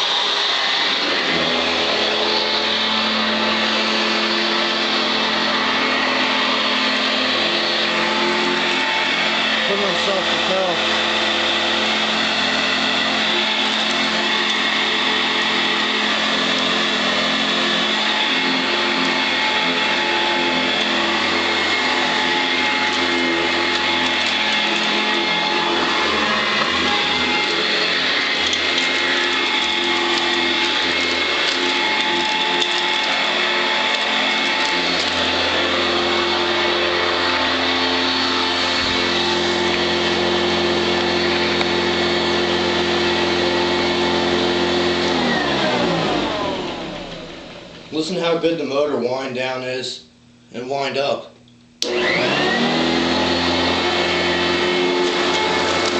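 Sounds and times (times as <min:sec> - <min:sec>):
vacuum cleaner motor whine: 0:00.0 - 0:48.9, 0:51.8 - 0:55.9.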